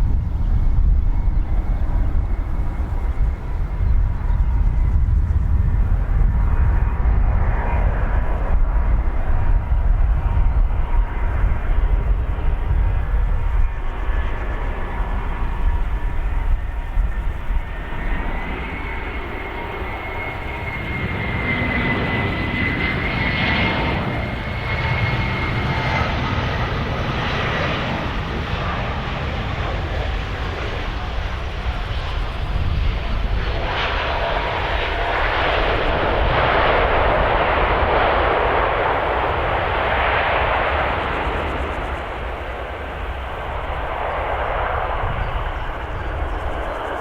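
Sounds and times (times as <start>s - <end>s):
jet engines running: 0.0s - 47.0s.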